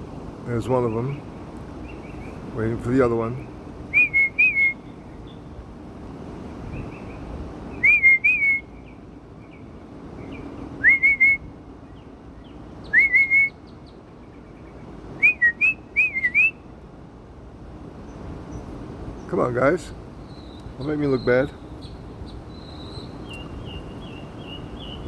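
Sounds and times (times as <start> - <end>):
bird chirps: 0.9 - 2.5, 6.6 - 16.6, 20.2 - 25.0
person whistling: 7.8 - 8.6, 10.8 - 11.4, 13.0 - 13.5, 15.2 - 16.5.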